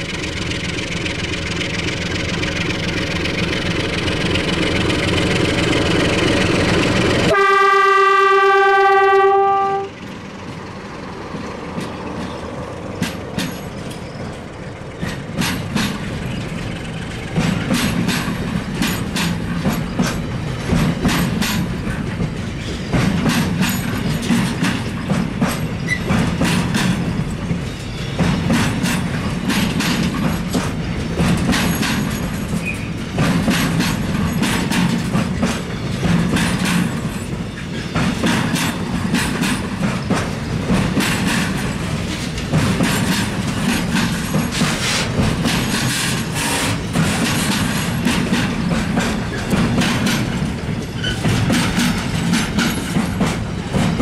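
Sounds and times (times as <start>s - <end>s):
diesel locomotive engine: 0.0s - 54.0s
train wheels clicking and rumbling: 0.0s - 54.0s
locomotive horn blast: 7.3s - 10.0s.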